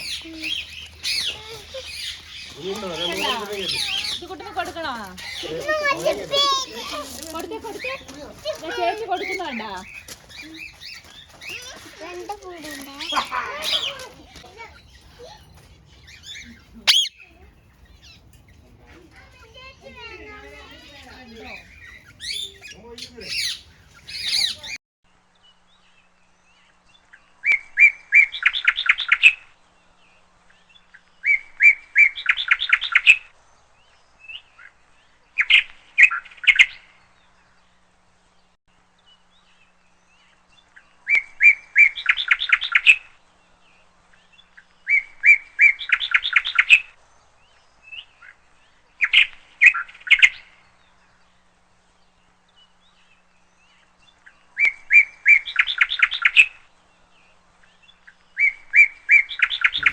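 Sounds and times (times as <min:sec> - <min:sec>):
bird chirping and trilling: 0:00.0 - 0:11.9, 0:13.0 - 0:24.8, 0:59.2 - 0:59.9.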